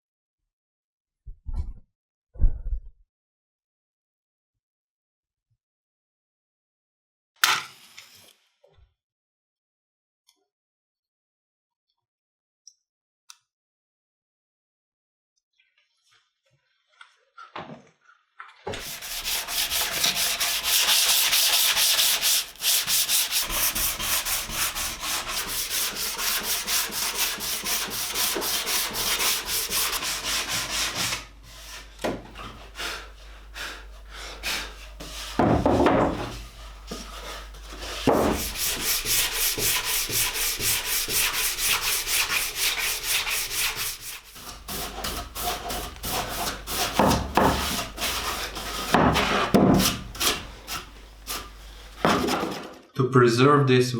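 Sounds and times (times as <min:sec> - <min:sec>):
sandpaper rubbing on wood: 0:18.8 - 0:52.6.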